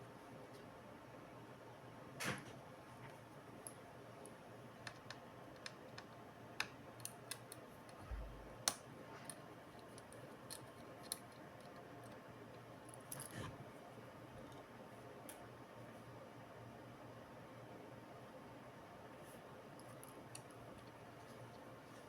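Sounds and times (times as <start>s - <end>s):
small parts and tools clicking: 8.6s - 13.4s.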